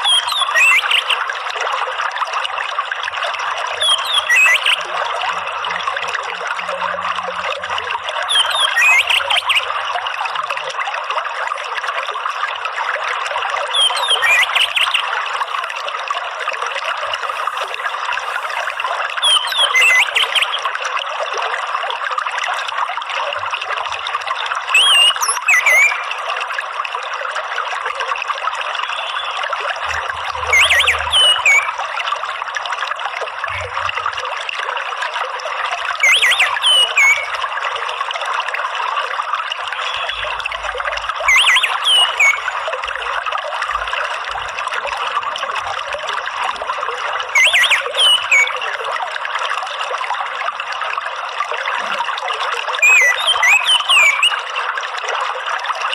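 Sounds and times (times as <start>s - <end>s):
water trickling: 0.0s - 55.9s
high gliding bird chirps: 0.1s - 1.2s, 3.8s - 4.8s, 8.3s - 9.7s, 13.8s - 15.1s, 17.4s - 20.6s, 24.8s - 26.0s, 28.9s - 31.8s, 36.0s - 37.4s, 41.3s - 42.5s, 47.4s - 48.6s, 52.8s - 54.4s.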